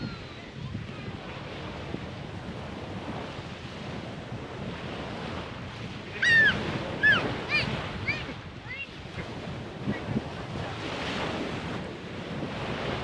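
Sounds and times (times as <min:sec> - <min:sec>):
surf washing on shore: 0:00.0 - 0:13.0
wind buffeting microphone: 0:00.0 - 0:13.0.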